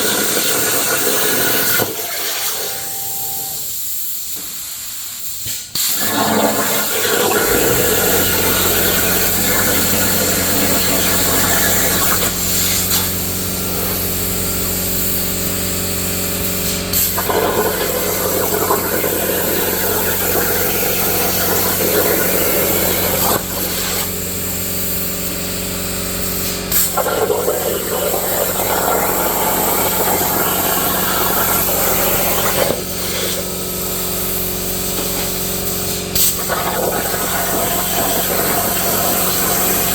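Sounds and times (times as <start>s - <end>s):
plasma torch hissing: 0.0s - 39.9s
machine hum: 6.1s - 14.8s.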